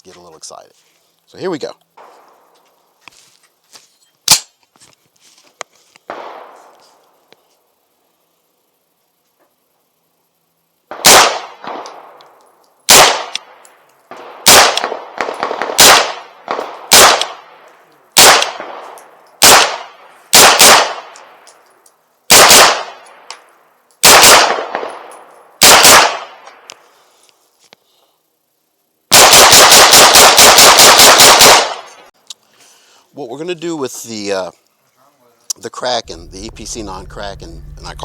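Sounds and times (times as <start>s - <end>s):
carbine gunshots echoing: 10.9s - 12.2s, 12.9s - 21.4s, 22.3s - 23.1s, 24.0s - 26.6s, 29.1s - 32.0s.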